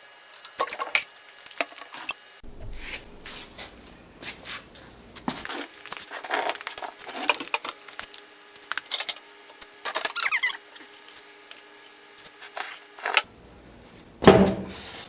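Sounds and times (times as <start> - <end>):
faint steady hum: 0.0 - 15.0
handling clicks knocks and scrapes: 0.4 - 13.3
brief squeak: 10.1 - 10.6.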